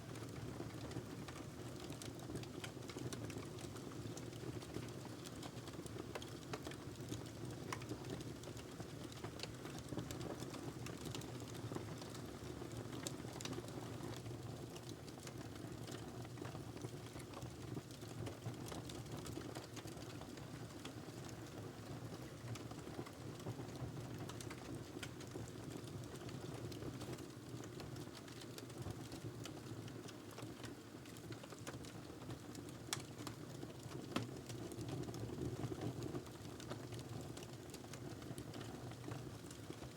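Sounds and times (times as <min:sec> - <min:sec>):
wood fire crackling: 0:00.1 - 0:21.6, 0:22.3 - 0:39.9.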